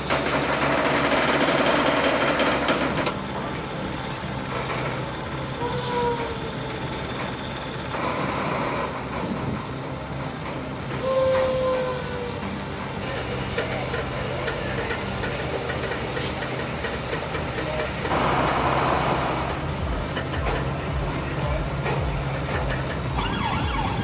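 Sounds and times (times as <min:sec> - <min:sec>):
short squeals: 0:00.0 - 0:09.8, 0:22.8 - 0:24.0
heavy vehicle engine rumbling: 0:00.0 - 0:24.0.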